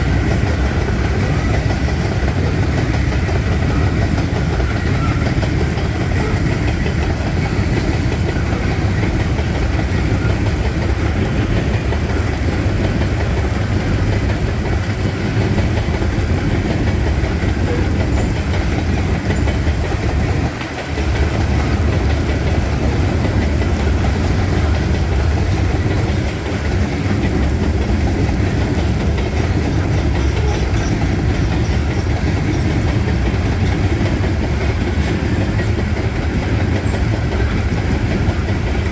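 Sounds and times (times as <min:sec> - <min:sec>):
freight train rumbling: 0:00.0 - 0:38.9
wheels clattering over rail joints: 0:00.0 - 0:38.9.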